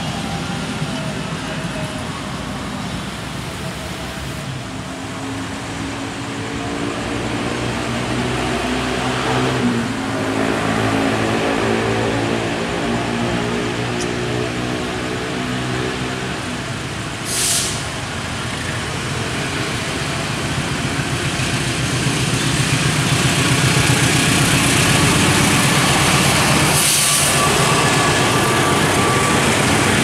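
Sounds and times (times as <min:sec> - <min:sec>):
passenger train passing: 0:00.0 - 0:30.0
short hissing bursts: 0:17.2 - 0:18.0, 0:26.8 - 0:27.4.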